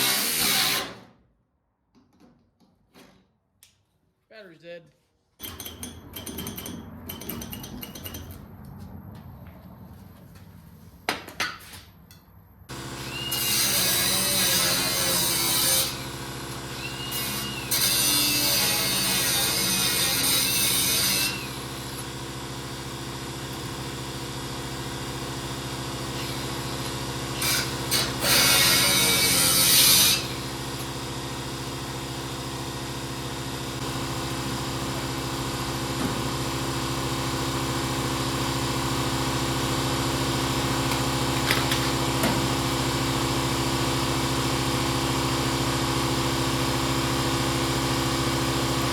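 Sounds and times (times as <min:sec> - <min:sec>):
power tool cutting steel: 0:00.0 - 0:01.0, 0:12.7 - 0:22.2, 0:25.8 - 0:33.0.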